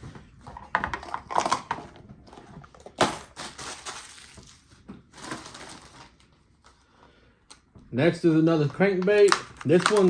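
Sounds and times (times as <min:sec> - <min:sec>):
plastic packaging crinkling: 0:01.0 - 0:06.4, 0:08.3 - 0:10.0.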